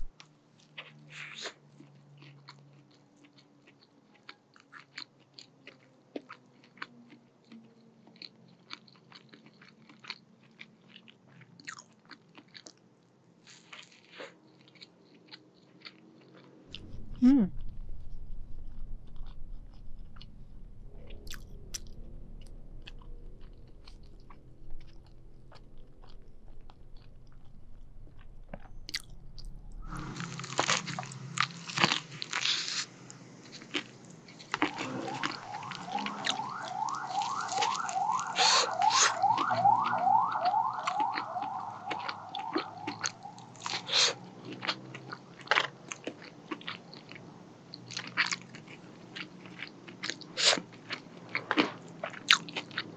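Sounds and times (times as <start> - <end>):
chewing fried chicken: 0.0 - 17.0, 18.6 - 20.3, 21.0 - 52.9
crunching crispy skin: 29.8 - 47.1.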